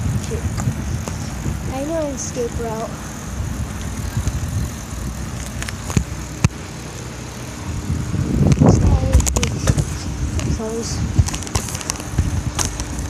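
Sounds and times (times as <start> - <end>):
wind on microphone: 0.0 - 6.6, 7.5 - 13.0
bicycle tyre rumble: 0.0 - 13.0.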